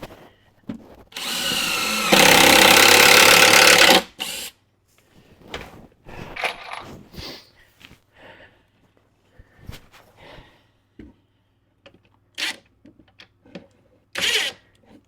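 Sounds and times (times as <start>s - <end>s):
power drill driving screw into wood: 1.2s - 4.5s, 14.2s - 14.6s.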